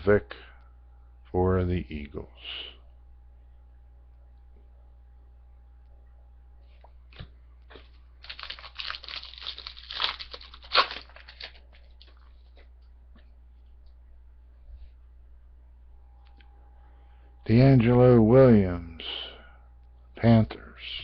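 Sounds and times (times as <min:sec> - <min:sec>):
foil wrapper crinkling and tearing: 0:08.2 - 0:12.3.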